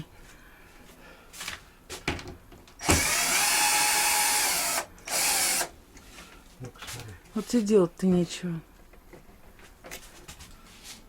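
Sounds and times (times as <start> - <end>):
power drill running: 2.8 - 5.7.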